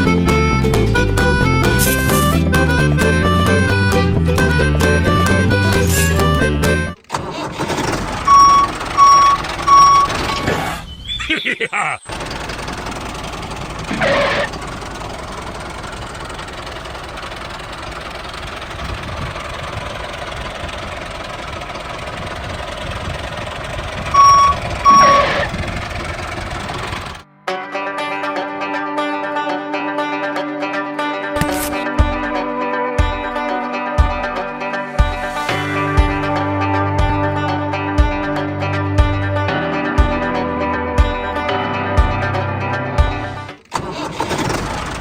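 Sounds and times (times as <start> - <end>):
small tractor motor running: 5.2 - 10.5, 12.1 - 27.2, 43.1 - 45.0
short beeps: 8.3 - 10.4, 24.2 - 25.5.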